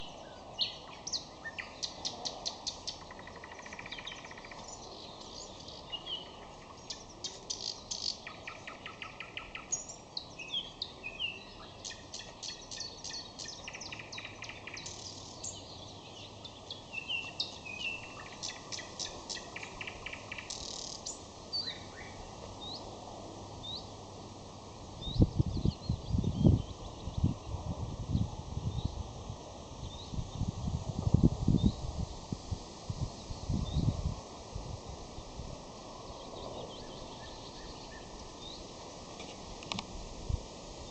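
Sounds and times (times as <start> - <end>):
nightingale singing: 0.0 - 22.9.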